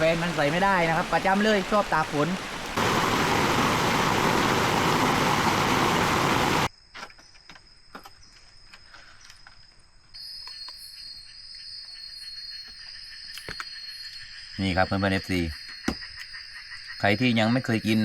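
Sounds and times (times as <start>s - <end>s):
heavy rain pouring: 0.0s - 6.7s
high-pitched insect drone: 10.2s - 18.0s.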